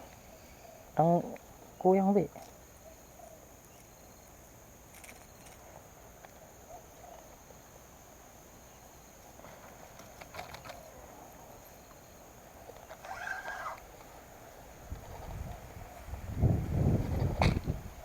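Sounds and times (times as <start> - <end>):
clicks and rustles: 4.9 - 5.6, 9.4 - 10.9.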